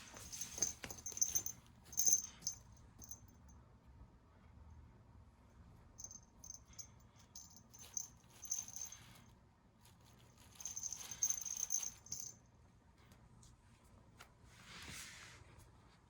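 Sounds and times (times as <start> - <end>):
cat toy rattling: 0.0 - 3.2, 6.0 - 9.2, 10.1 - 12.4.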